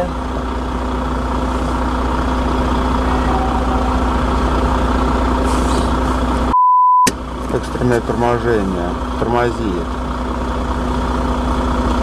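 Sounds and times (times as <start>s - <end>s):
vehicle engine hum from inside: 0.0s - 12.0s.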